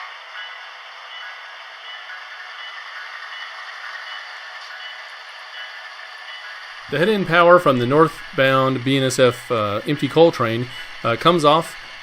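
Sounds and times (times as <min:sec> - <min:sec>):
model trains running: 0:00.0 - 0:12.0.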